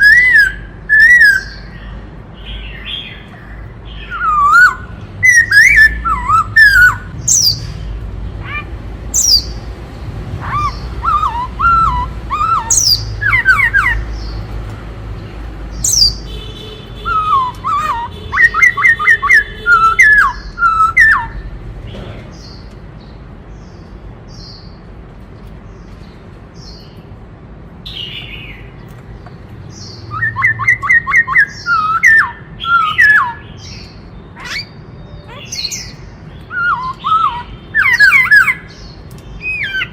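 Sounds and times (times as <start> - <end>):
bird singing whistled phrases: 0.0 - 1.7, 3.9 - 7.7, 9.2 - 9.5, 10.5 - 14.0, 17.0 - 21.4, 30.0 - 35.9
high bird chirps: 0.0 - 9.7, 10.4 - 14.6, 15.7 - 21.5, 29.6 - 39.9.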